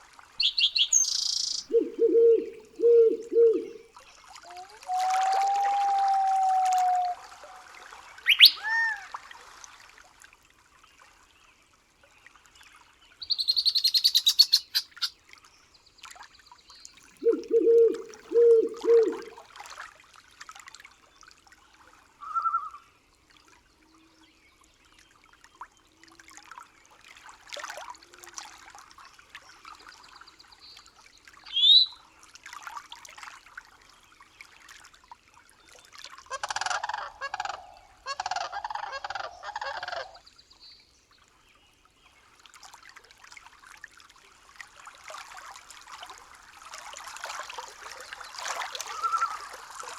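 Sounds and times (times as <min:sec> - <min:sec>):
rapid high bird trill: 0:00.4 - 0:01.8, 0:08.3 - 0:08.6, 0:13.3 - 0:15.1
sharp whistled bird call: 0:00.4 - 0:03.7, 0:08.3 - 0:08.8, 0:13.2 - 0:15.1, 0:31.5 - 0:32.0
low hoots: 0:01.6 - 0:03.8, 0:04.5 - 0:07.5, 0:17.2 - 0:19.4.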